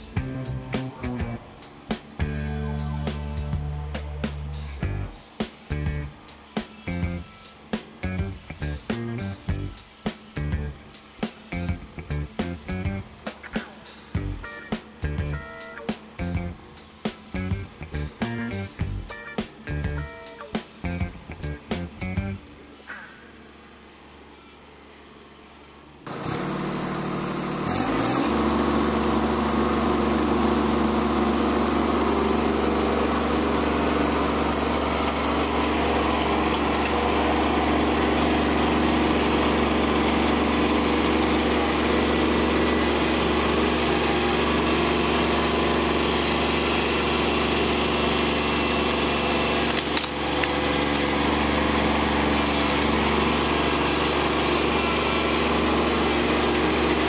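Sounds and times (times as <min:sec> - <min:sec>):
tractor diesel engine: 0:00.0 - 0:06.1, 0:26.1 - 0:57.0.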